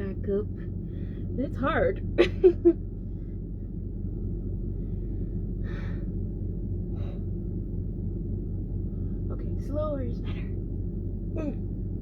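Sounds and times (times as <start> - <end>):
steady low hum: 0.0 - 12.0
woman grunting: 11.4 - 11.6.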